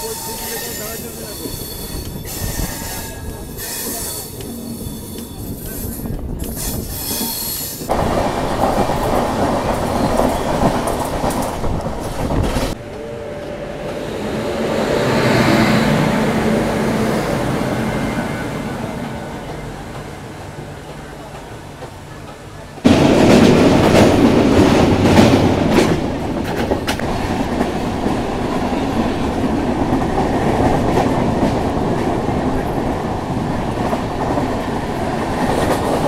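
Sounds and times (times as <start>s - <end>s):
train rumble: 0.0s - 36.0s
rush of wheel and wind noise: 4.8s - 12.8s.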